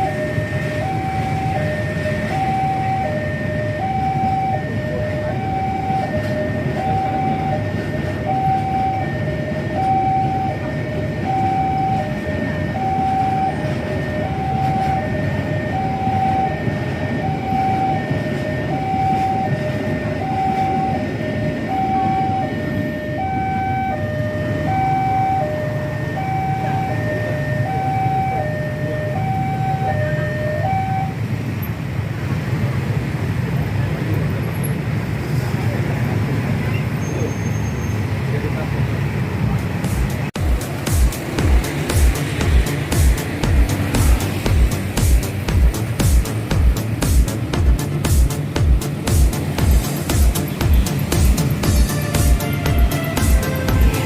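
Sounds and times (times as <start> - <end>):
two-tone crossing alarm chime: 0.0 - 31.3.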